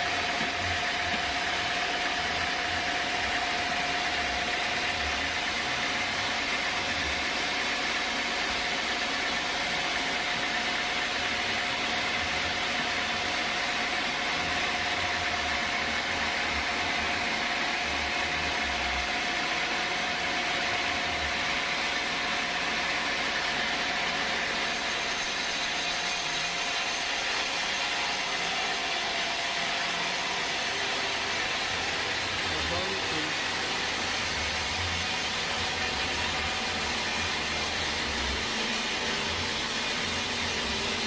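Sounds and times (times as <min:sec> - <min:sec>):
sawmill machinery whining: 0:00.0 - 0:41.0.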